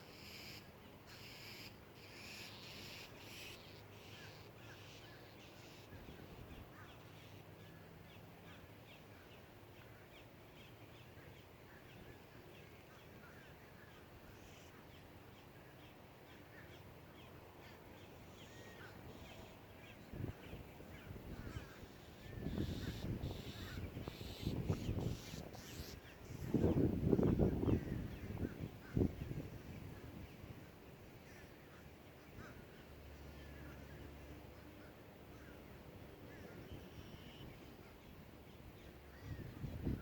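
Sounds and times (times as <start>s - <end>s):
faint short bird calls: 36.3s - 38.0s.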